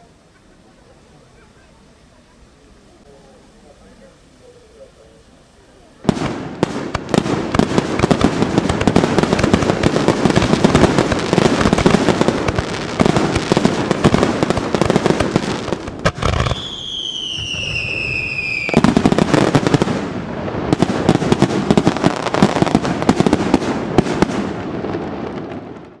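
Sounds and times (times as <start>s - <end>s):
fireworks bursts and crackling: 0.0s - 26.0s
falling firework whistle: 15.7s - 19.8s.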